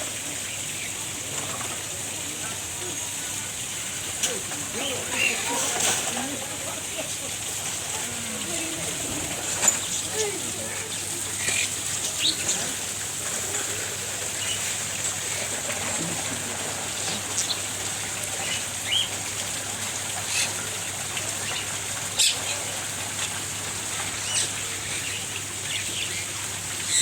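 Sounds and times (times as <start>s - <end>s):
birds chirping: 4.2s - 7.0s, 8.5s - 13.0s, 13.7s - 15.2s, 17.1s - 19.2s, 20.2s - 22.8s, 24.0s - 27.0s.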